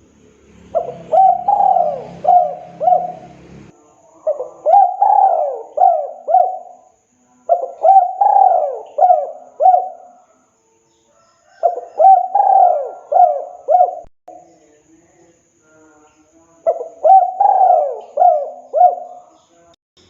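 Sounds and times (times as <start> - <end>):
dove cooing: 0.0 - 6.9, 7.5 - 10.2, 11.5 - 14.1, 16.6 - 19.3.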